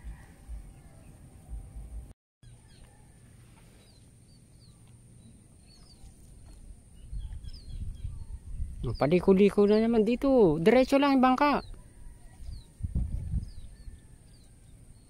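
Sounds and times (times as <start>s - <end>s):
low steady rumble: 0.0s - 8.8s.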